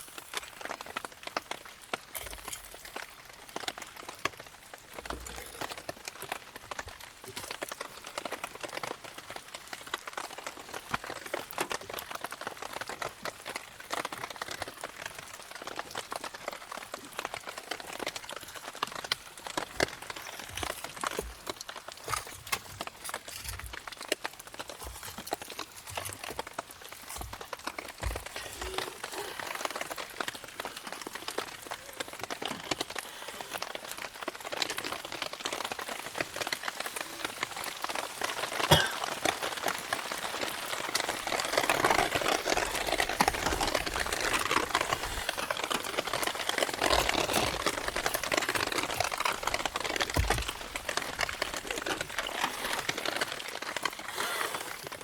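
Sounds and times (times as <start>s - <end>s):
campfire crackling and popping: 0.0s - 55.0s
rain hissing: 35.8s - 54.8s.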